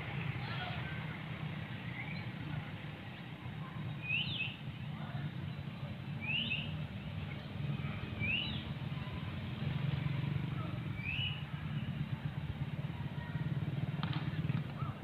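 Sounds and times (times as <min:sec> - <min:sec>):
high bird chirps: 0:03.9 - 0:04.6, 0:06.2 - 0:07.5, 0:11.0 - 0:11.4.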